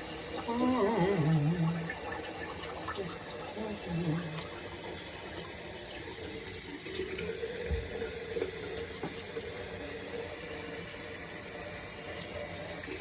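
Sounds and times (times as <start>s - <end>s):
tap running into sink: 6.3s - 9.7s.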